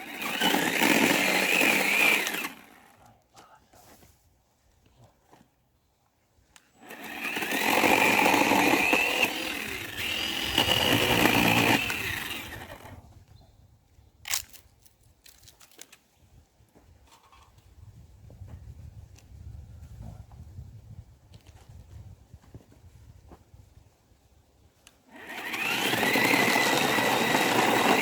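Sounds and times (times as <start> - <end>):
chainsaw running at high revs: 0.0 - 2.9, 6.8 - 12.9, 25.1 - 28.0.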